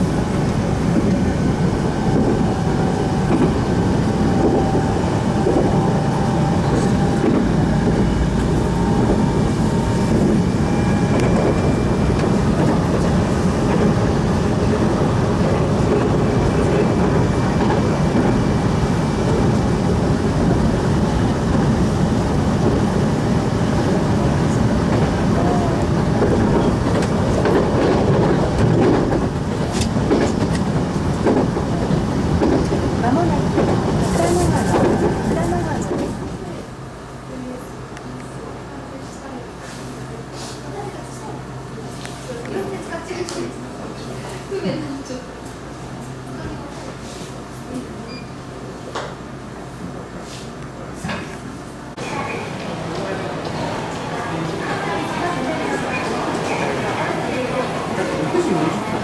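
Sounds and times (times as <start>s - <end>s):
train wheels rumbling on rails: 0.0s - 36.8s, 50.6s - 59.0s.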